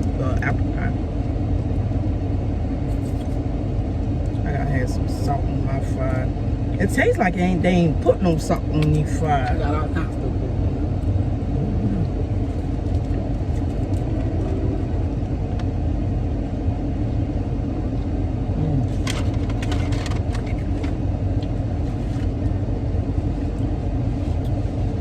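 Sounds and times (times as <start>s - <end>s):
car engine idling: 0.0s - 25.0s
crinkling and rustling: 18.9s - 21.0s.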